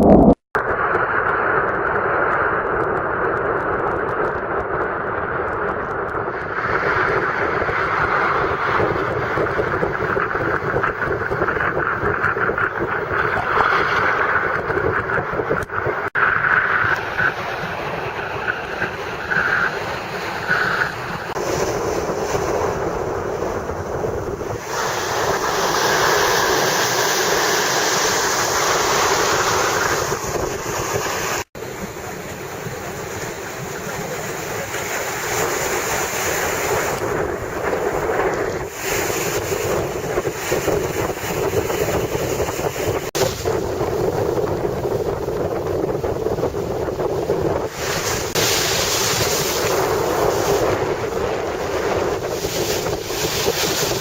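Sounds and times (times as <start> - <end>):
wind buffeting microphone: 0.0 - 54.0
rough surf rushing: 6.2 - 54.0.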